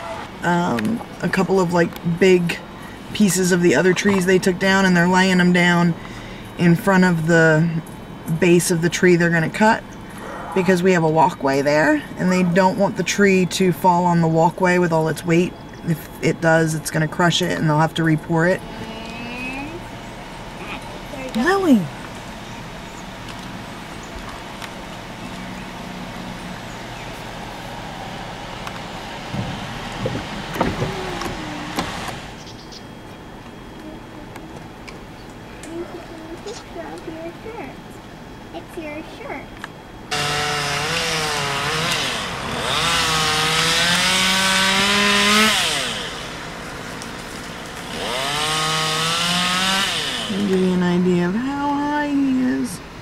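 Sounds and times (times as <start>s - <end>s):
faint pitched drone: 0.0s - 53.0s
low engine hum: 0.0s - 53.0s
chainsaw revving and cutting: 30.6s - 32.4s, 40.1s - 50.6s.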